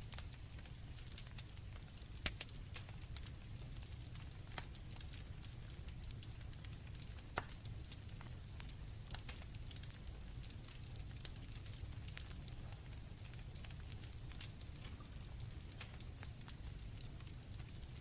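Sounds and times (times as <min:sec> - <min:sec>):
campfire crackling and popping: 0:00.0 - 0:18.0
crickets trilling: 0:00.0 - 0:18.0
sharp snap of fire: 0:02.2 - 0:03.4, 0:07.0 - 0:10.0, 0:13.6 - 0:17.7.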